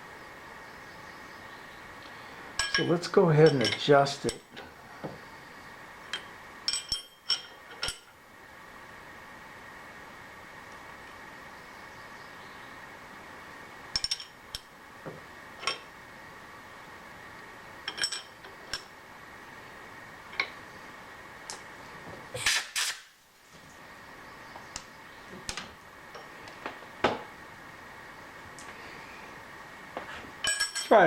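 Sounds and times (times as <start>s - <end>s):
steady machine hum: 0.0s - 22.4s, 23.2s - 31.0s
metal tool clinks and taps: 2.6s - 2.9s, 3.5s - 4.6s, 6.1s - 8.1s, 30.4s - 31.0s.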